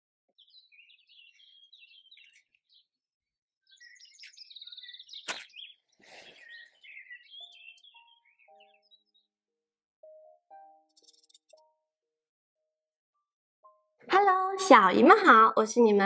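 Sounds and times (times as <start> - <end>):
small birds chirping: 0.3 - 11.9
sharp click: 5.3 - 5.5.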